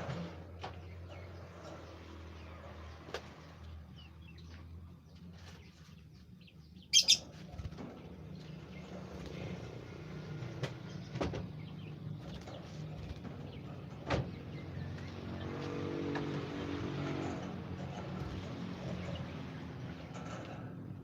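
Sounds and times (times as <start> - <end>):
low engine-like hum: 0.0 - 21.0
faint bird calls: 6.9 - 7.3.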